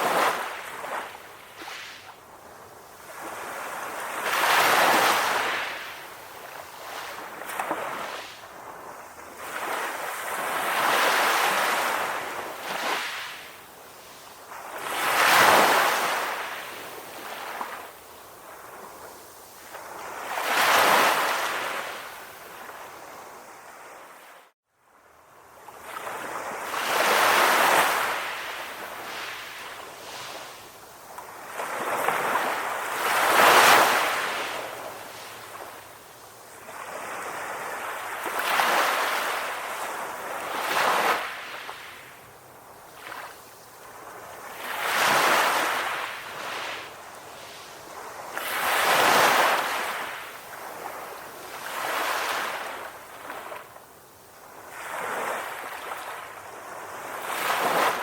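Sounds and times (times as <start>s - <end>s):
calm ocean waves: 0.0s - 58.0s.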